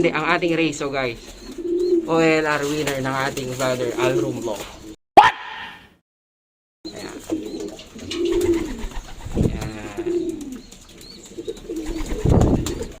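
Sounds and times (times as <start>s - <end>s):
pigeons cooing: 1.2s - 5.0s, 6.9s - 13.0s.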